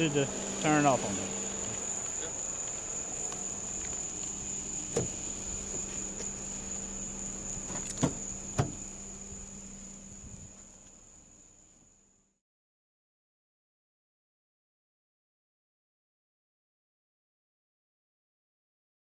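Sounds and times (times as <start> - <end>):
night insects droning: 0.0 - 12.4.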